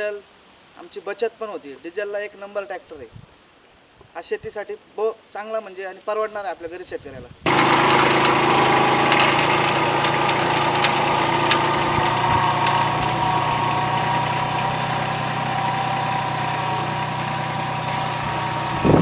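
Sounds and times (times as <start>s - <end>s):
tractor diesel engine running: 7.5s - 19.0s.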